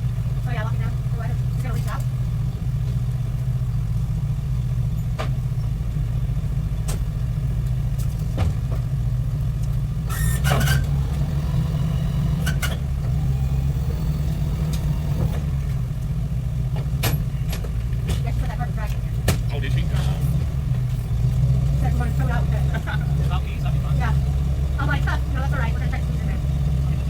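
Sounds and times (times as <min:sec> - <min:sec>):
clatter: 0:00.0 - 0:11.3, 0:13.8 - 0:26.3
truck engine idling: 0:00.0 - 0:27.0.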